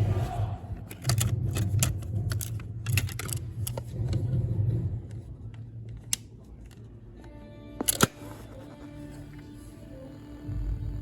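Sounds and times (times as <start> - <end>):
cassette mechanism running: 0.8 - 4.4.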